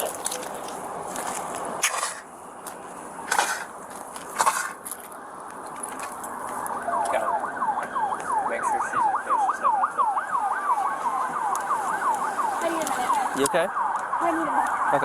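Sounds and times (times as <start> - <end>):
emergency siren yelping: 4.4 - 15.0.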